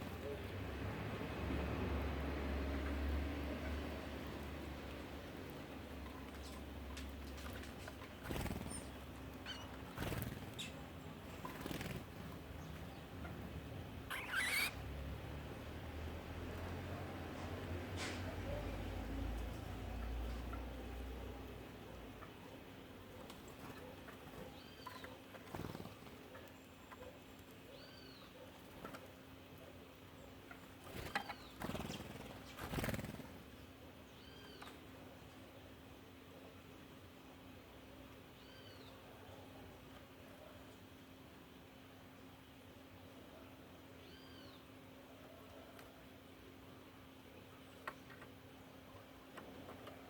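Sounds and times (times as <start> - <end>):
faint songbird calls: 8.4 - 11.8, 12.6 - 14.8, 23.6 - 29.0, 34.0 - 34.8, 38.3 - 39.6, 43.3 - 46.0
faint bird chirps: 14.1 - 14.8, 38.4 - 39.5, 44.0 - 44.7.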